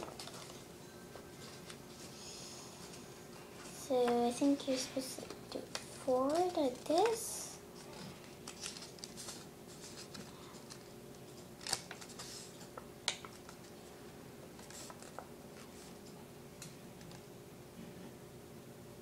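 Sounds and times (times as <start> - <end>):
paper crackles: 0.0 - 0.7, 3.6 - 13.8, 14.5 - 16.0
paper rustling and creasing: 0.0 - 2.2, 2.8 - 13.8, 14.5 - 16.1.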